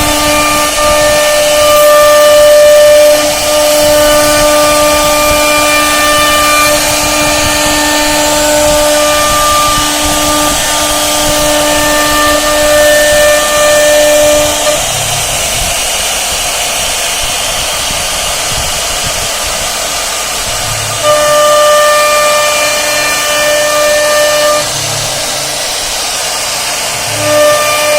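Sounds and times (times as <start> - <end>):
bit carving wood hiss: 0.0 - 27.9
router spindle whine: 0.0 - 27.9.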